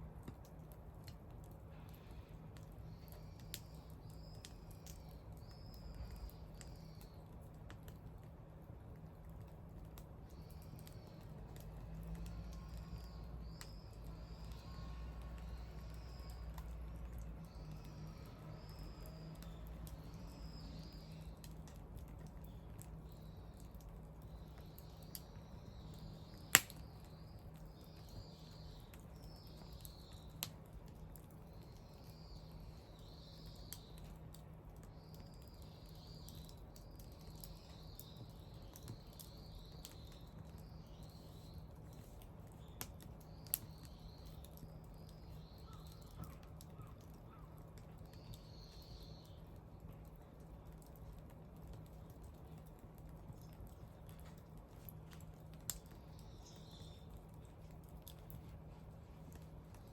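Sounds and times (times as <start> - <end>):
bonfire crackling: 0.0 - 59.9
low steady hum: 0.0 - 59.9
faint high chirping: 12.2 - 21.5
sharp fire pops: 26.2 - 27.1.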